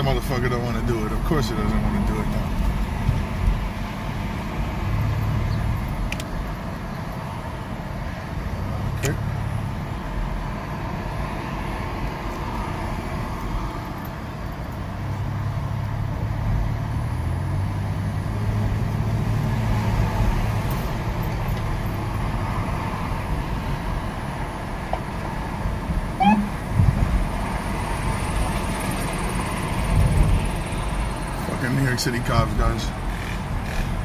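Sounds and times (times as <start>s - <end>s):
car engine hum: 0.0s - 34.0s
road noise inside car: 0.0s - 34.0s
short chirp: 26.2s - 26.6s.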